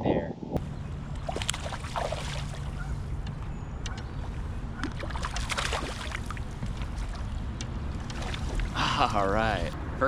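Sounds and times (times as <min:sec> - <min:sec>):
water splashing: 0:01.1 - 0:03.1, 0:03.9 - 0:09.7.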